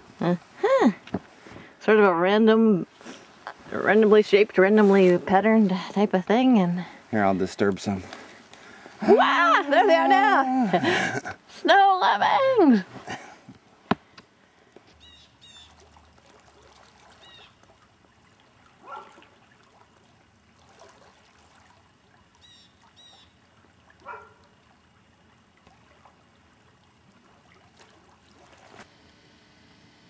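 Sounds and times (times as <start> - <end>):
water trickling: 15.0 - 28.8
small bird chirping: 22.4 - 23.4.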